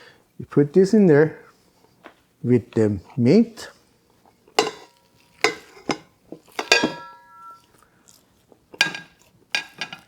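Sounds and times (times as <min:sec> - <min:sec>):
kitchen utensils and dishes clinking: 0:04.6 - 0:08.2, 0:08.8 - 0:10.0.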